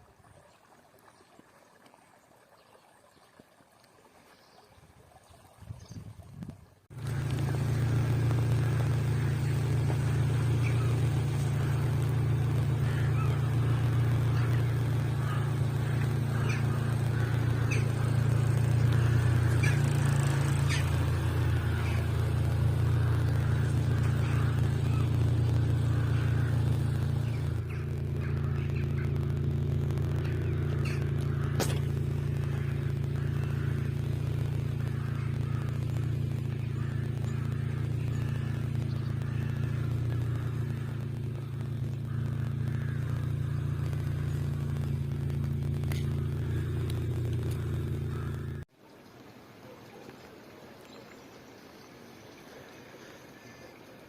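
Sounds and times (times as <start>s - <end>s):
low engine-like drone: 6.9s - 54.0s
faint high calls: 7.0s - 48.6s.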